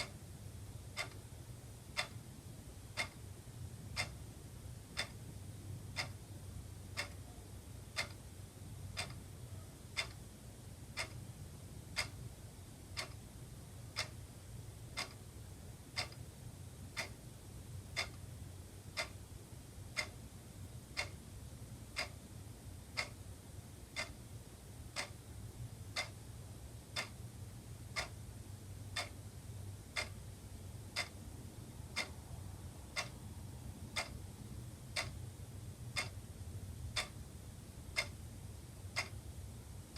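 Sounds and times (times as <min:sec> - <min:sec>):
faint low hum: 0:00.0 - 0:39.9
wall clock ticking: 0:00.0 - 0:39.9.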